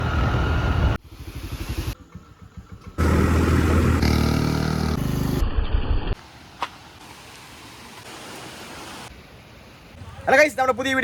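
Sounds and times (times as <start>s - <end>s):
motorcycle engine revving: 0.7s - 6.2s.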